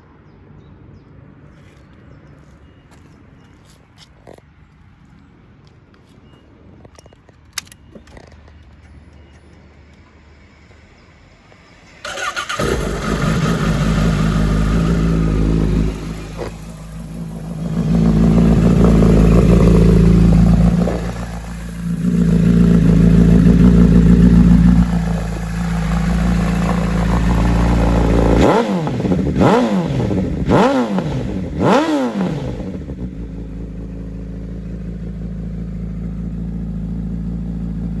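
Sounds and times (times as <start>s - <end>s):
motorcycle engine revving: 12.0s - 38.0s.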